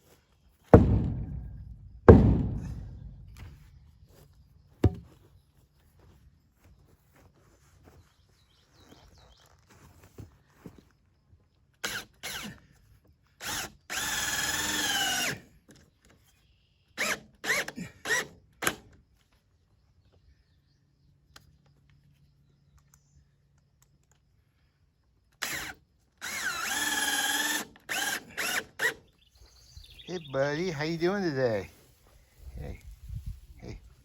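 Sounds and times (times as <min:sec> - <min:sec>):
power drill running: 0:11.8 - 0:12.6, 0:13.4 - 0:15.5, 0:17.0 - 0:18.3, 0:25.4 - 0:29.1.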